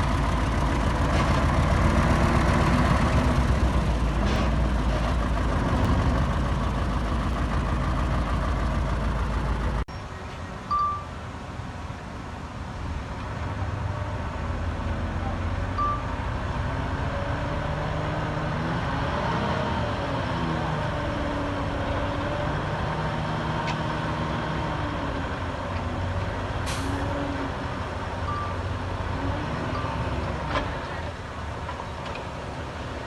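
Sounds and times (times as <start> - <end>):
diesel truck engine running: 0.0 - 9.9
short beeps: 10.7 - 11.2, 15.8 - 16.2, 28.3 - 28.6
air brake hiss: 26.6 - 27.0.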